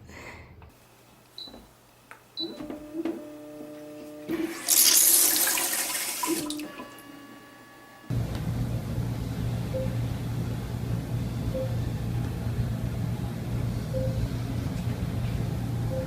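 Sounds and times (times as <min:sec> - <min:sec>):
water running: 0:04.3 - 0:07.1
steady low hum: 0:07.8 - 0:16.0.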